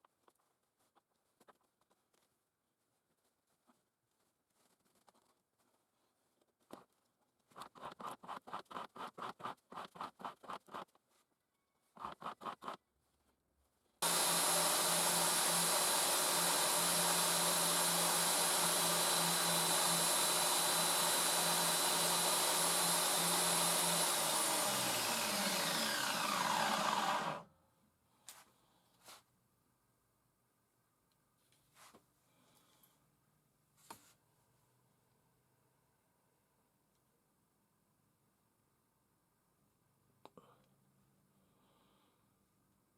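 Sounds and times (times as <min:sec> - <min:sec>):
belt grinder whining: 0:14.0 - 0:27.5.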